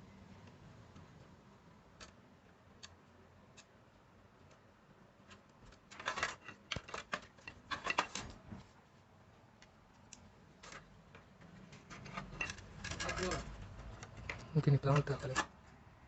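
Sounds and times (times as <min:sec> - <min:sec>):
small hard objects clicking and rattling: 0:11.9 - 0:15.5.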